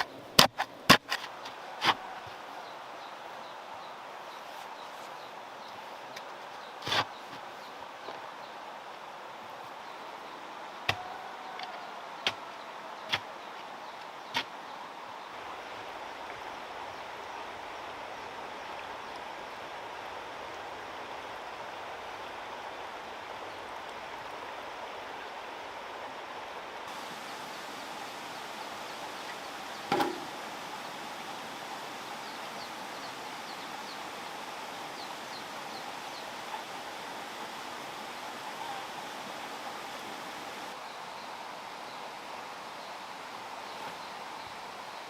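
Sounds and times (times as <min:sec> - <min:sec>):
outdoor background noise: 0:00.0 - 0:45.0
sharp knock: 0:29.9 - 0:30.3.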